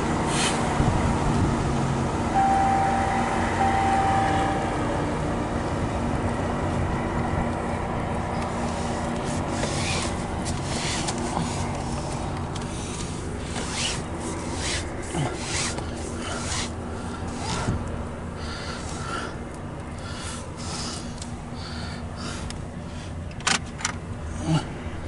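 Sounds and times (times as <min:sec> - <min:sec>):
rasping scraping noises: 0:08.6 - 0:17.8.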